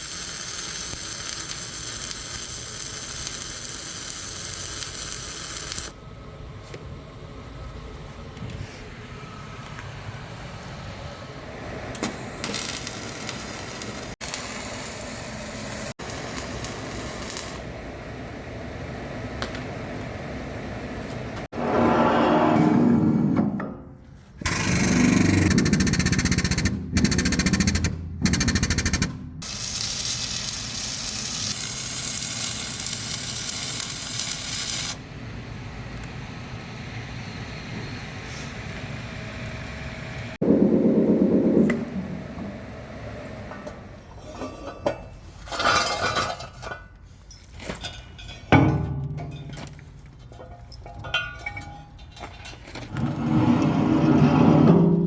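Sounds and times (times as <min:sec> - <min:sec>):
arc welding crackling hiss: 0:00.0 - 0:06.0, 0:12.0 - 0:17.6, 0:29.4 - 0:35.0.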